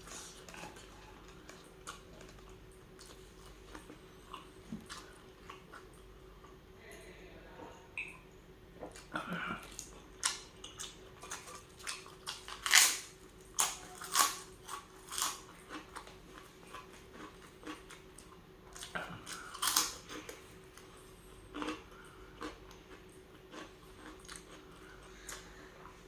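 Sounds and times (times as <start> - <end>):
wet chewing: 21.5 - 25.5.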